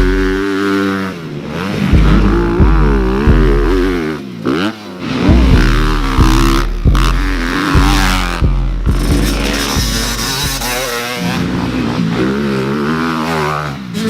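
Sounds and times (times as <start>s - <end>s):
music with heavy bass beat: 0.0s - 0.5s, 1.9s - 4.2s, 5.1s - 11.2s
dirt bike engines revving: 0.0s - 14.0s.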